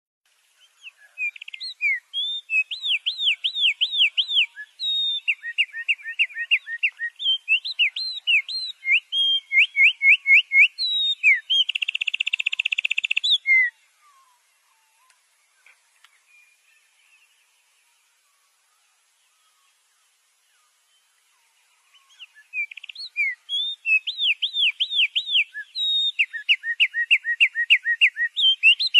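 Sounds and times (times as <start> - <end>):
songbird singing: 0.3 - 28.9.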